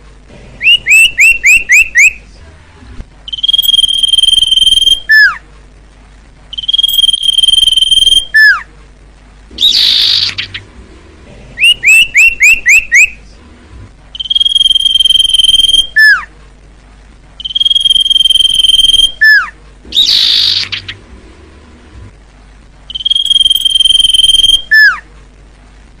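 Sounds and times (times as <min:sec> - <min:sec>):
bird raspy churr: 0:00.6 - 0:02.2, 0:03.3 - 0:05.4, 0:06.6 - 0:08.7, 0:09.6 - 0:10.7, 0:11.6 - 0:13.2, 0:14.2 - 0:16.3, 0:17.4 - 0:21.1, 0:22.9 - 0:25.0
bird whistle with falling note: 0:03.3 - 0:05.4, 0:06.6 - 0:08.6, 0:14.2 - 0:16.2, 0:17.4 - 0:20.9, 0:22.9 - 0:25.0
bird short rising chirps: 0:22.9 - 0:25.0.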